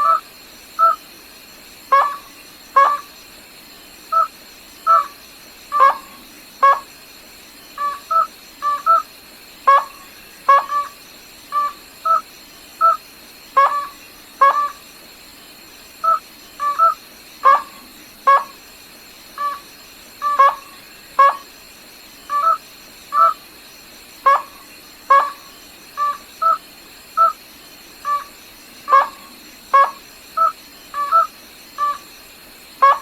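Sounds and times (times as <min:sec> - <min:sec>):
rail calling: 0:01.9 - 0:03.1, 0:04.1 - 0:06.9, 0:07.8 - 0:13.0, 0:19.4 - 0:21.5, 0:24.2 - 0:27.4, 0:28.0 - 0:32.2.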